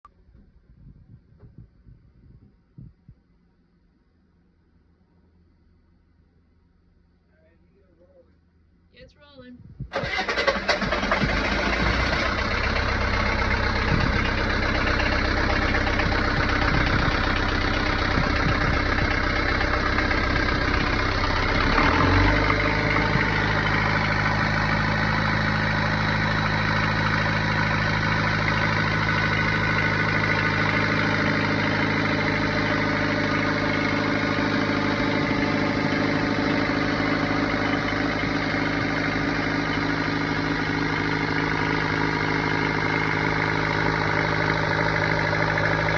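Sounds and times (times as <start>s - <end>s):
boat engine running: 10.0s - 45.9s.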